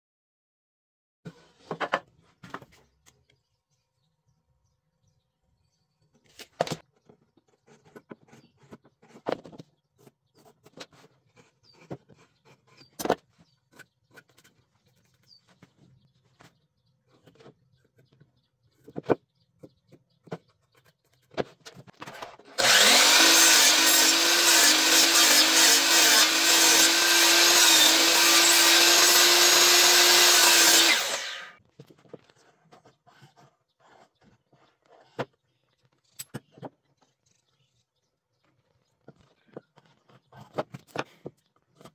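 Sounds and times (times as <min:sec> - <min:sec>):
power tool cutting wood: 0:22.1 - 0:31.6.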